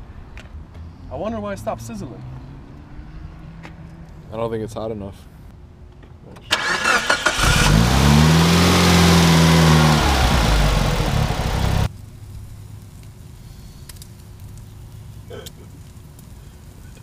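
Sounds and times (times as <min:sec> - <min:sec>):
car engine revving: 0:06.6 - 0:11.9.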